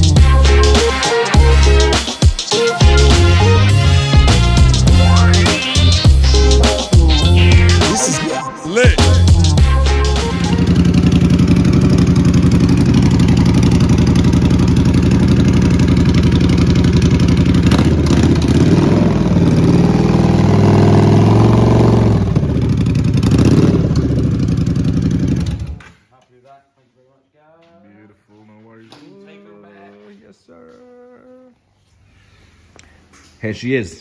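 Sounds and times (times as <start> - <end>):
motorcycle engine idling and revving: 10.4 - 25.9.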